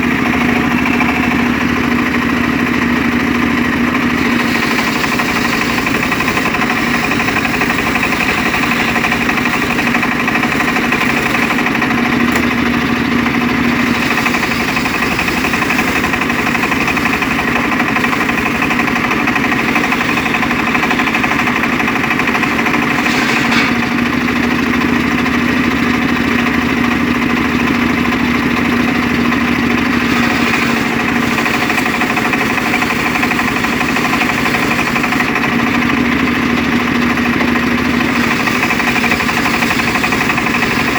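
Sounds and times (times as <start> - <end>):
circular saw engine running: 0.0 - 40.9.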